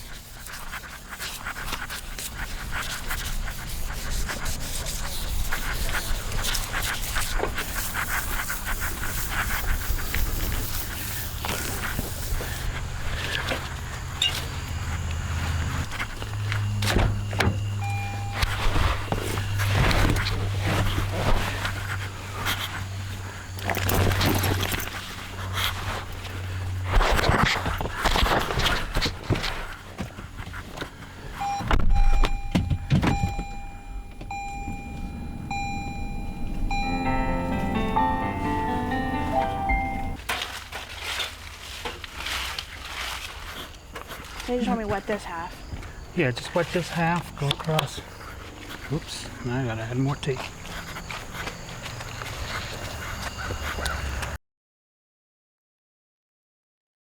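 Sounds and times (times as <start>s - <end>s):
sandpaper rubbing painted metal: 0.0s - 12.8s
steady low hum: 29.5s - 40.2s
scraping and handling noises: 40.2s - 45.0s.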